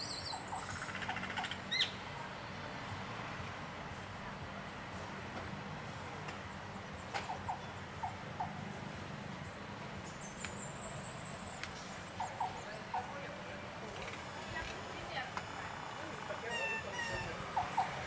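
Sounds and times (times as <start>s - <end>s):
chirp-like animal calls: 12.1s - 13.2s, 15.6s - 18.0s.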